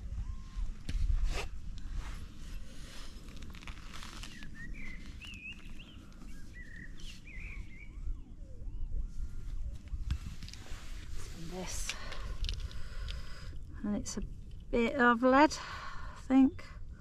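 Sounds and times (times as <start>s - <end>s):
wind rumble on microphone: 0.0s - 17.0s
scrape of soil: 1.0s - 5.5s
small bird chirping: 4.0s - 8.1s.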